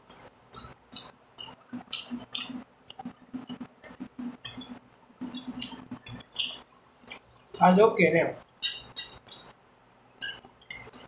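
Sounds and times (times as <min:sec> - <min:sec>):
person chewing raw vegetable: 0:00.0 - 0:07.5.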